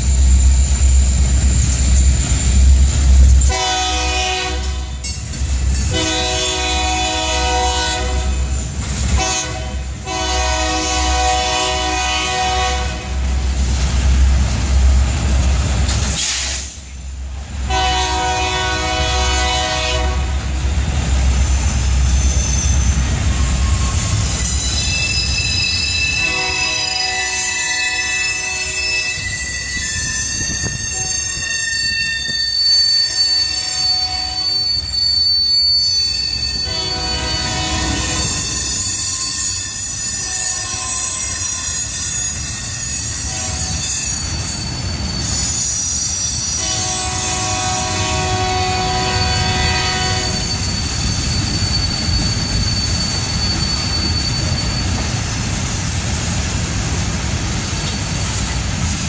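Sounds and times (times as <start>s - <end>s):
freight cars rumbling on rail: 0.0s - 59.0s
high-pitched wheel squeals: 21.0s - 56.0s.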